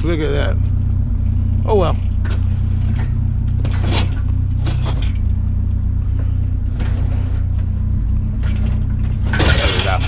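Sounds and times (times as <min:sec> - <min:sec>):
vehicle engine idling: 0:00.0 - 0:10.0
short knocks and scrapes: 0:02.2 - 0:05.3, 0:06.2 - 0:07.7.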